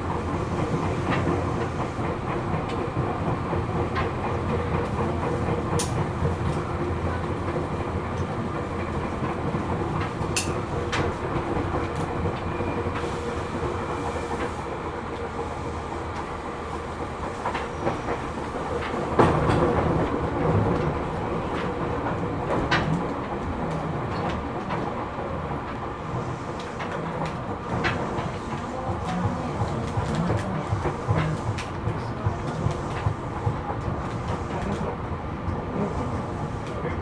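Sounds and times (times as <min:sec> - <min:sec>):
train wheel and rail rumble: 0:00.0 - 0:37.0.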